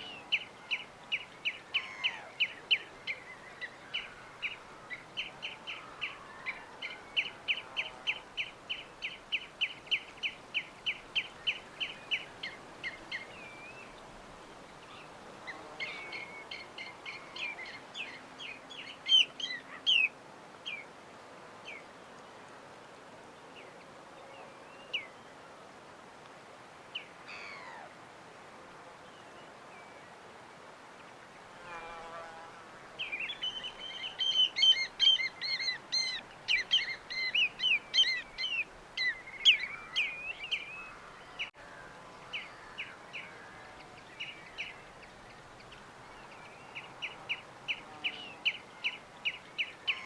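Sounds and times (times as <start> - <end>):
steady soft hiss: 0.0 - 50.0
songbirds chirping and whistling: 14.8 - 20.9, 33.0 - 41.6, 42.2 - 50.0.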